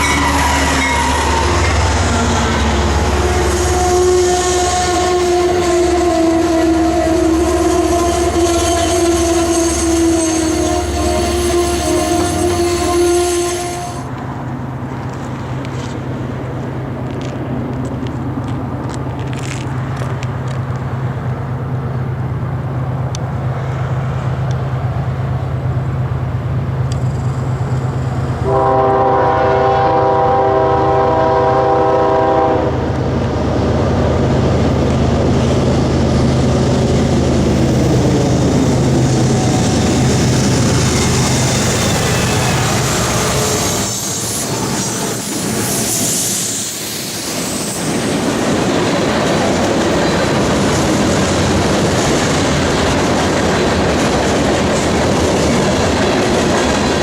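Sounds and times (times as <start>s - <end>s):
train air horn: 0.0s - 14.1s, 28.4s - 32.8s, 41.9s - 46.8s
diesel locomotive engine droning: 0.0s - 57.0s
passing train rail noise: 0.0s - 57.0s.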